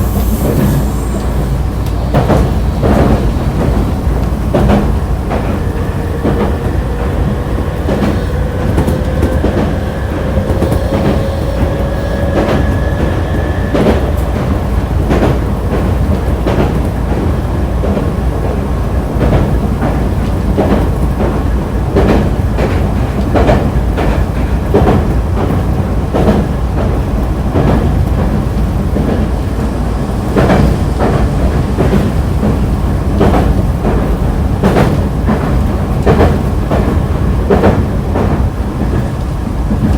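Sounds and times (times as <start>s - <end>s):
low train rumble: 0.0s - 39.9s
train wheels clicking over rail joints: 0.0s - 39.9s
faint rising tone: 5.4s - 15.1s.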